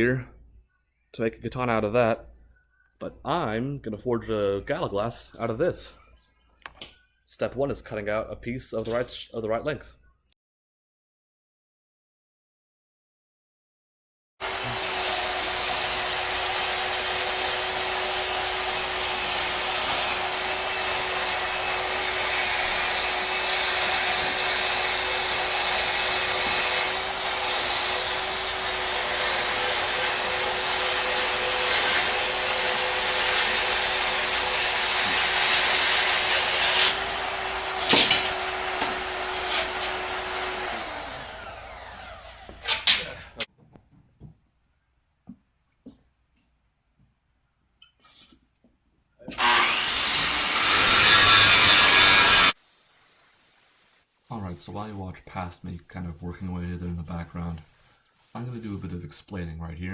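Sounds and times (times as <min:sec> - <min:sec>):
bandsaw cutting steel: 0:14.4 - 0:43.5, 0:49.3 - 0:52.6.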